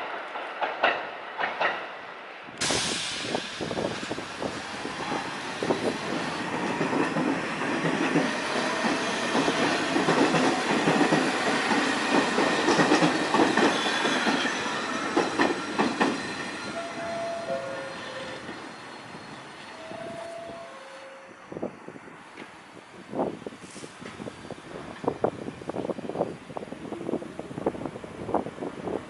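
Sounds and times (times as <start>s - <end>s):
subway wheels clattering: 0.0s - 29.0s
train squeals: 4.8s - 22.9s.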